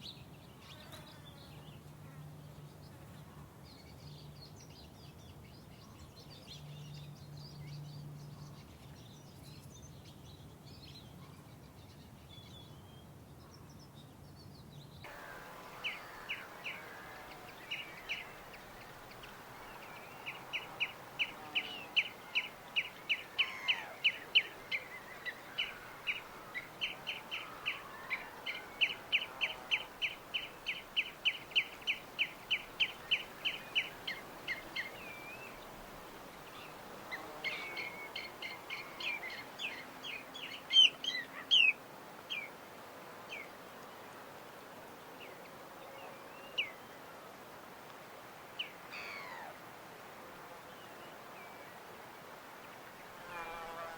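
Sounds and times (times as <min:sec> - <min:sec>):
low steady buzz: 0:15.0 - 0:53.9
birds calling: 0:15.1 - 0:42.5, 0:48.6 - 0:49.5.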